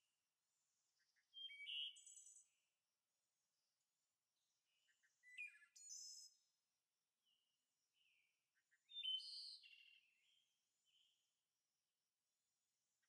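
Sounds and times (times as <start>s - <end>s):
faint bird chirping: 0.6s - 2.8s, 4.4s - 6.5s, 7.2s - 11.4s.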